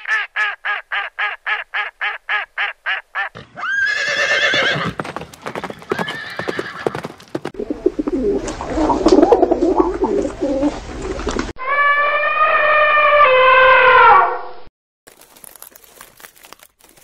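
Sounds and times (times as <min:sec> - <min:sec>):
pigeons cooing: 0:07.6 - 0:11.4.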